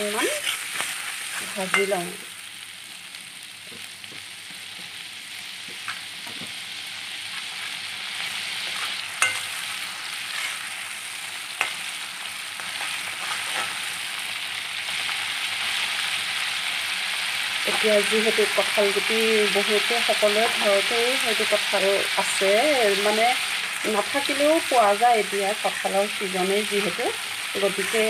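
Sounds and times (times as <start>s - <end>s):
paste sizzling in hot oil: 0.0s - 28.0s
spatula tapping and scraping pan: 8.7s - 9.5s.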